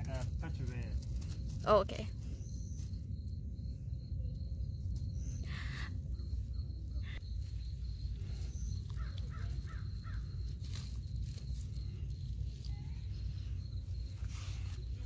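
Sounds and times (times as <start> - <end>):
steady low rumble: 0.0 - 15.0
crow-like bird calls: 5.4 - 6.0, 9.0 - 10.4.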